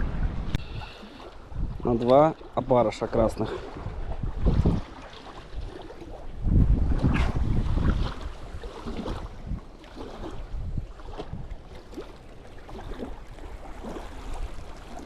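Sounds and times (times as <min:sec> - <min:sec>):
wind blowing across microphone: 0:00.0 - 0:12.0.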